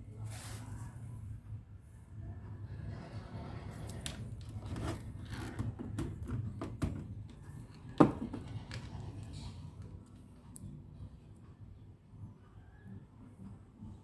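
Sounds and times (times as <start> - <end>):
hand-handling clicks and scrapes: 2.9 - 10.2.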